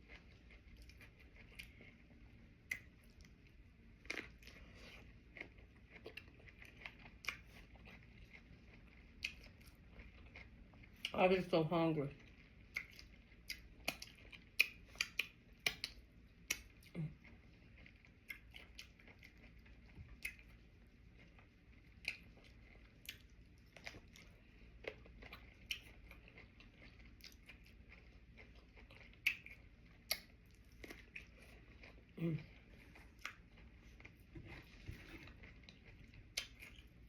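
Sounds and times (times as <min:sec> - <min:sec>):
crisp chewing crunches: 0:00.0 - 0:11.2, 0:12.1 - 0:37.0
wet mouth clicks: 0:12.7 - 0:16.8.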